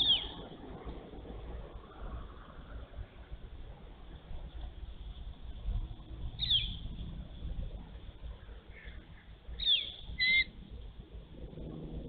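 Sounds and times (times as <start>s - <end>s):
low background rumble: 0.0s - 12.0s
bird calling high notes: 9.6s - 10.5s.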